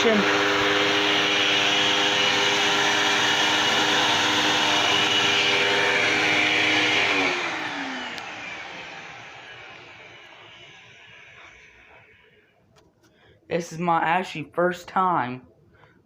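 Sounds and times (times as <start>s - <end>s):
vacuum cleaner motor whining: 0.0s - 12.5s.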